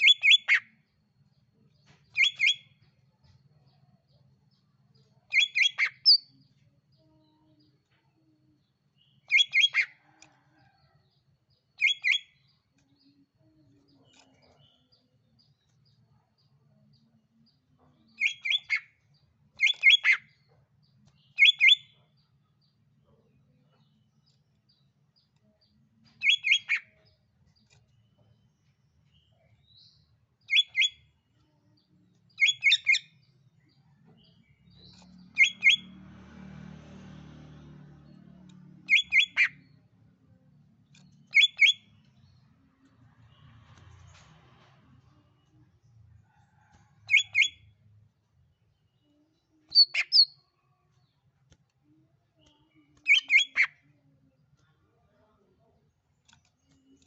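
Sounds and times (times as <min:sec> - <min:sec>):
bird calls with sharp notes: 0:41.3 - 0:41.8, 0:53.0 - 0:53.8.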